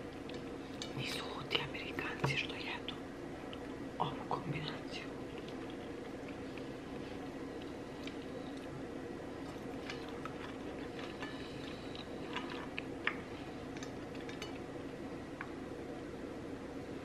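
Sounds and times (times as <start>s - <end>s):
low background hum: 0.0s - 17.0s
chewing crunchy food: 5.1s - 14.7s.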